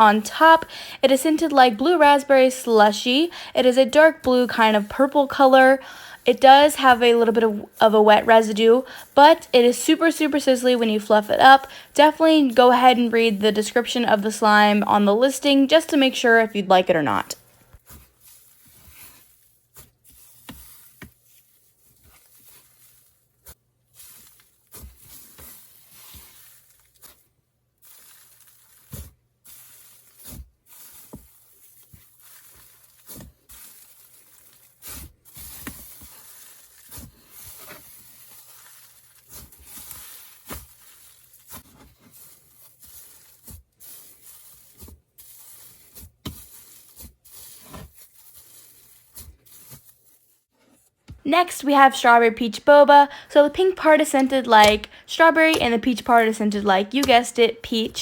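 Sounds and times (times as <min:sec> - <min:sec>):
slime squishing and crackling: 0:17.8 - 0:50.4.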